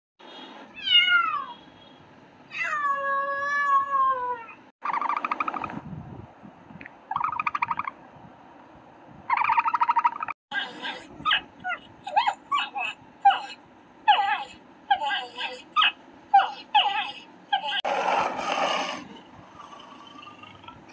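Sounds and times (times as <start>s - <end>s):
cat meowing: 0.8s - 1.6s
buzzy rasping animal calls: 17.7s - 20.9s.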